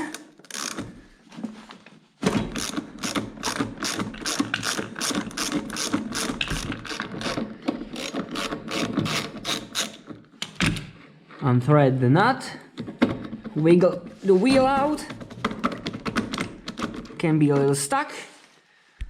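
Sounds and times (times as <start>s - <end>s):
ratchet wrench clicking: 0.4s - 0.8s, 2.6s - 7.4s, 8.0s - 10.0s.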